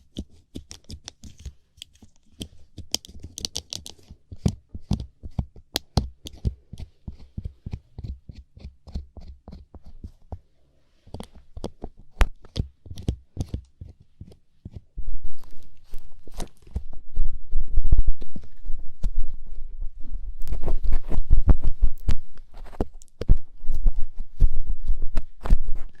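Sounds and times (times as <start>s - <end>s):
ear pick scraping microphone: 15.0s - 26.0s.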